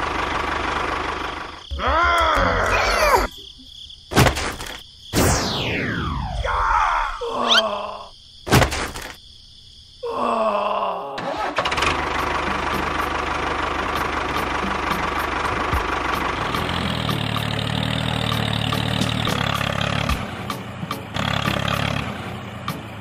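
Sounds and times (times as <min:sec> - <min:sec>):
falling whine: 0:05.2 - 0:07.2.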